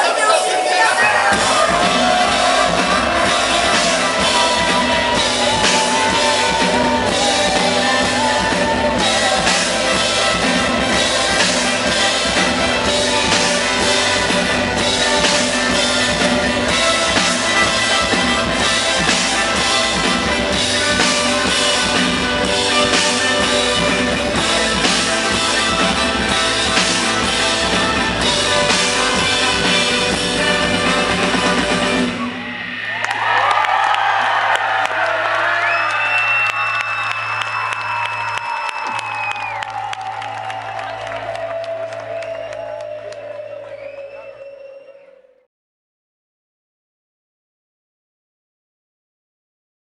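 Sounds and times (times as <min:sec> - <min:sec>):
live rock band playing: 0:00.1 - 0:33.0
drum kit with cymbals: 0:01.1 - 0:32.9
bass guitar: 0:01.2 - 0:44.0.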